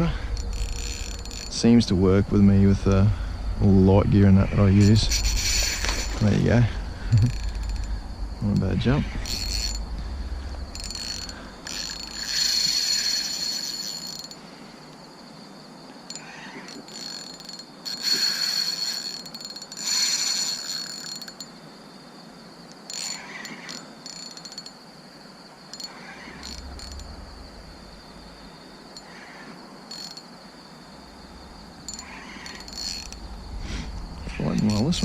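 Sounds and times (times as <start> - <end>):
night insects buzzing: 0.0 - 35.0
fishing reel drag clicking: 0.3 - 1.6, 4.8 - 6.3, 7.2 - 8.0, 9.2 - 9.8, 10.7 - 14.4, 16.1 - 21.5, 22.9 - 24.8, 25.7 - 27.2, 31.9 - 33.2.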